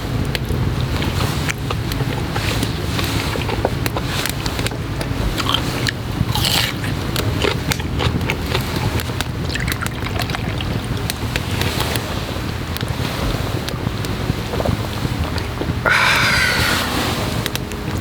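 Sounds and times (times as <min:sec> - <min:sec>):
wind rumbling on microphone: 0:00.0 - 0:18.0
person chewing: 0:05.4 - 0:08.8, 0:15.8 - 0:17.0.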